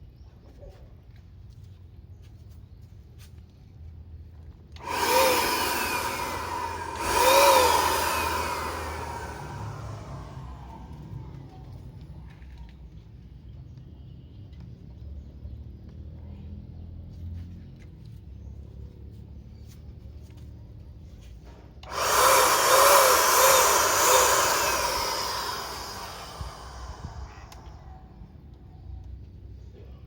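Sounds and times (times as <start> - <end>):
electric paint spray gun: 4.8 - 11.2, 21.8 - 27.9.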